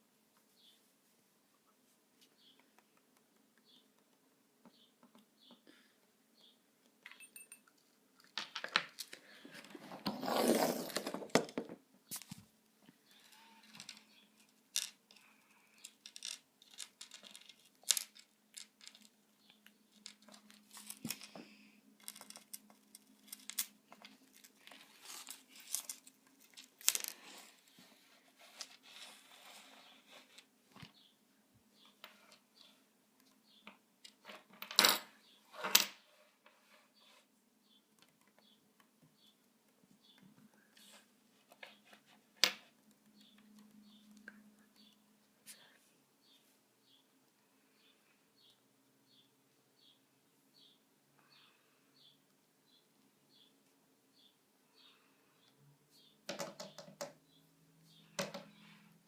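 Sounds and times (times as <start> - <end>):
rustling scrape: 9.4 - 11.3, 27.0 - 30.5.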